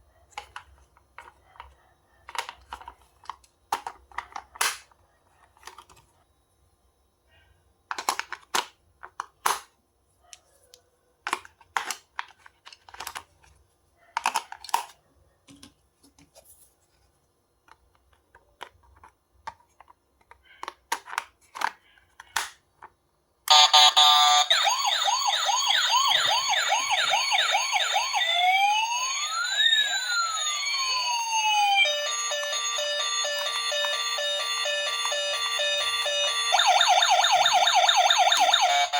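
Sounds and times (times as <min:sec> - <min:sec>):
toy electronic siren: 0:23.5 - 0:38.9.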